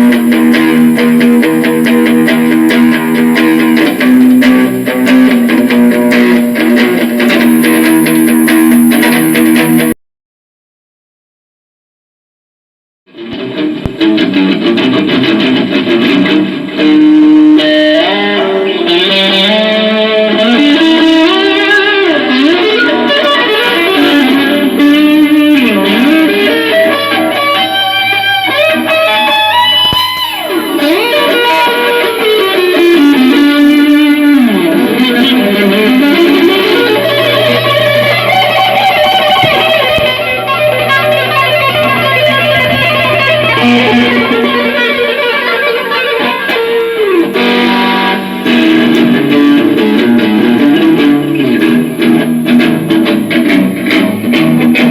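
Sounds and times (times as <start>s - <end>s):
electric guitar melody: 0.0s - 10.0s, 13.1s - 54.9s
low bass line: 35.8s - 44.8s.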